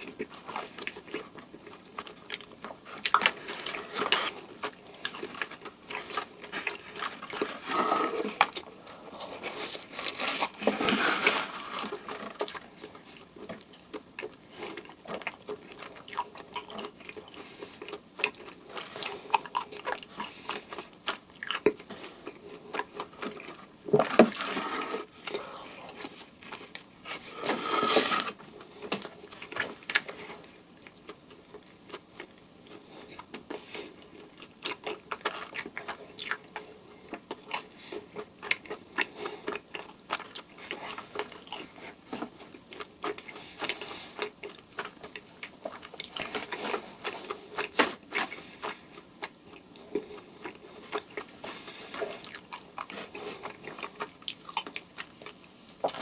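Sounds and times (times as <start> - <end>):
close-up chewing: 0.0 - 56.0.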